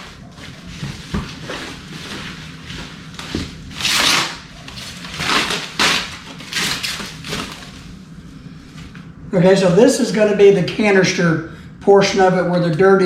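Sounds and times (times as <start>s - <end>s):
cardboard rustling and scraping: 0.0s - 8.0s.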